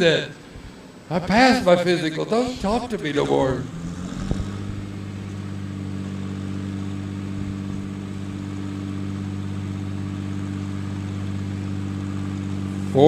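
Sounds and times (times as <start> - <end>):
tractor engine running: 2.6 - 13.0.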